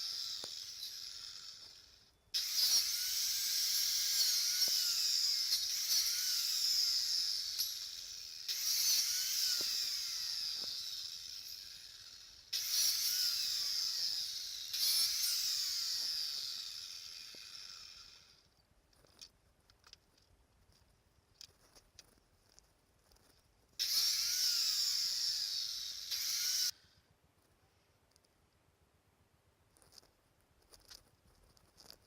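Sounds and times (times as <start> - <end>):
power tool whining: 0.0 - 18.5, 23.8 - 26.8.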